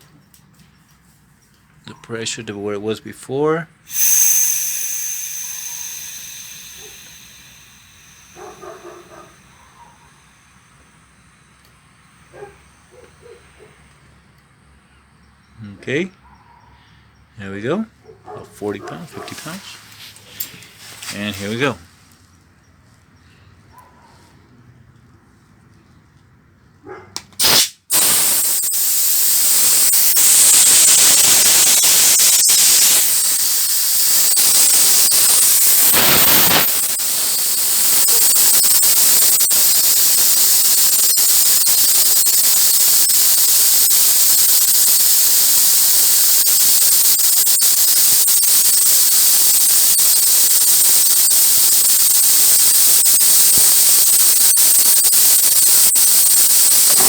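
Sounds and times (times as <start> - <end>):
valve clicks: 3.9 - 9.0, 27.4 - 57.0
compressed air hissing from air line: 3.9 - 9.3, 27.4 - 57.0.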